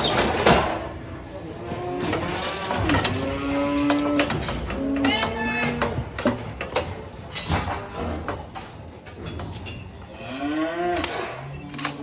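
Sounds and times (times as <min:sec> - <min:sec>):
cow mooing: 0:10.2 - 0:11.5.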